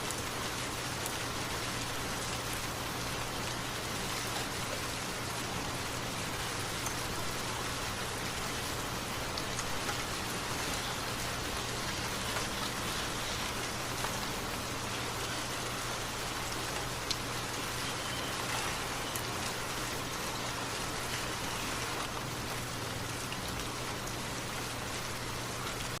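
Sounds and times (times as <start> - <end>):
rain falling: 0.0 - 26.0
raindrop ticks: 6.6 - 7.3, 9.2 - 15.4, 16.5 - 22.6.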